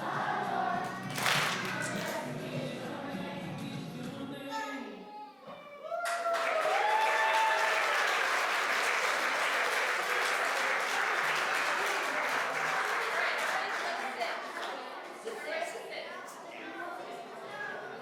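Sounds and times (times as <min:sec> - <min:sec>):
audience applause: 0:00.9 - 0:02.1, 0:06.0 - 0:15.1.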